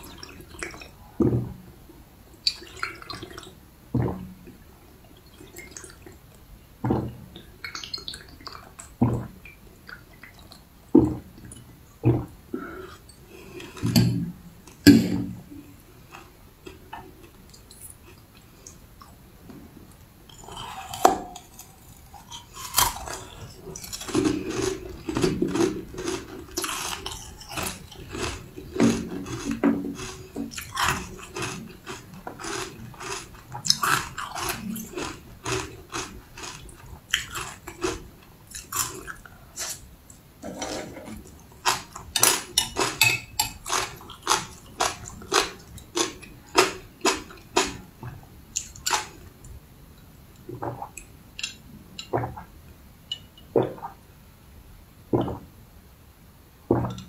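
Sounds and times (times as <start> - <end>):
person crunching candy: 25.5 - 36.6.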